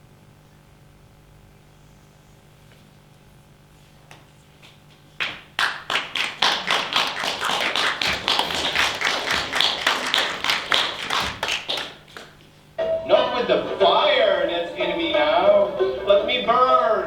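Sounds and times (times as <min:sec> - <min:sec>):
audience clapping: 0:04.1 - 0:14.6.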